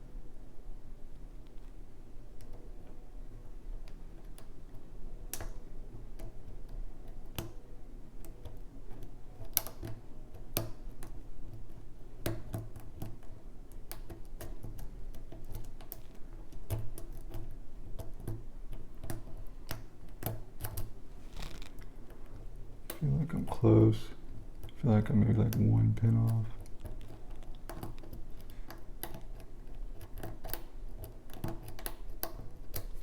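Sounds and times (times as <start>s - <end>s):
steady low hum: 20.9s - 30.0s.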